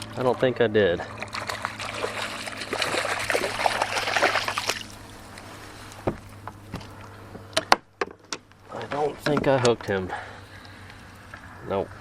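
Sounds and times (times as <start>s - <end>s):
water splashing and trickling: 0.0s - 7.2s.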